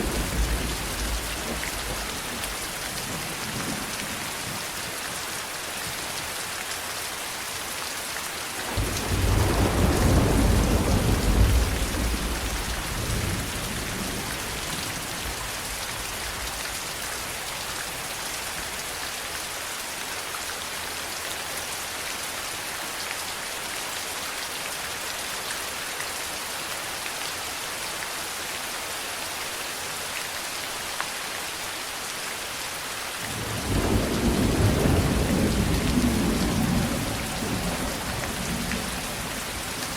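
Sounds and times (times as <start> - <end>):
thunder rumbling: 0.0 - 3.9, 8.7 - 16.6, 33.3 - 39.9
heavy rain falling: 0.0 - 39.9.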